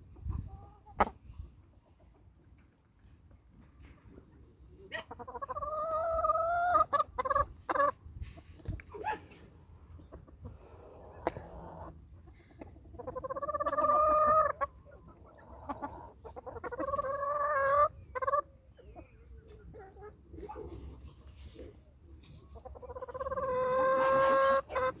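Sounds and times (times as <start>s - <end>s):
chickens clucking: 0.0s - 25.0s
long drawn-out chicken calls: 4.9s - 8.0s, 10.0s - 21.0s, 22.3s - 25.0s.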